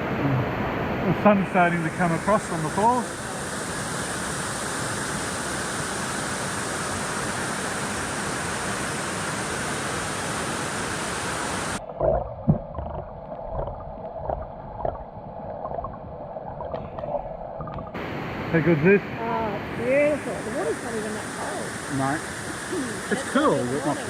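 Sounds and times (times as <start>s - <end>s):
waterfall roaring: 0.0s - 11.8s, 17.9s - 24.0s
water sloshing and splashing: 11.8s - 18.5s
knocks: 12.4s - 15.0s.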